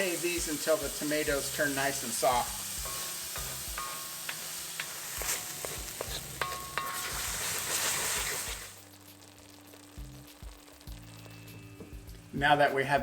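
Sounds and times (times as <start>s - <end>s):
food sizzling in hot oil: 0.0s - 13.0s
spoon scraping a metal pan: 1.5s - 8.7s.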